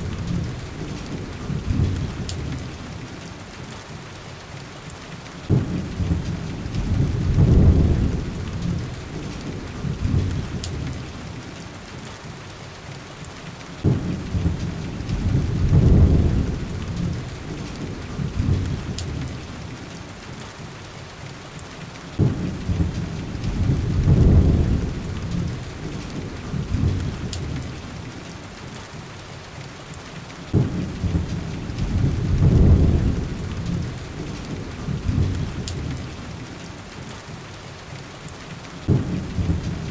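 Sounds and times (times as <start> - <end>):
thunder rumbling: 0.0 - 3.1, 5.4 - 11.6, 13.8 - 19.8, 22.2 - 28.1, 30.5 - 36.5, 38.8 - 39.9
heavy rain: 0.0 - 39.9.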